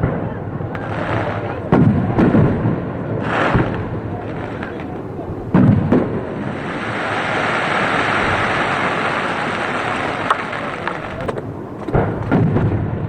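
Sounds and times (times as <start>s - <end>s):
firework crackle: 0.0s - 13.0s
low firework booms: 0.0s - 13.0s
heavy rain hissing: 0.8s - 12.4s.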